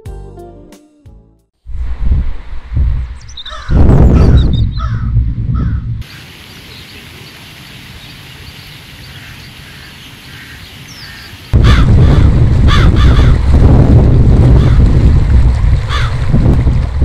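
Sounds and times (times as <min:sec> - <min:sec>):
wind rumbling on microphone: 0:01.6 - 0:06.2, 0:07.8 - 0:17.0
harsh bird calls: 0:03.2 - 0:13.4
outdoor hiss: 0:06.0 - 0:11.5.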